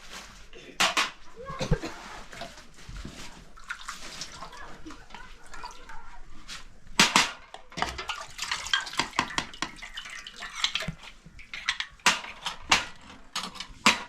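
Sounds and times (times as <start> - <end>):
water splashing: 3.4 - 6.0, 7.9 - 11.8.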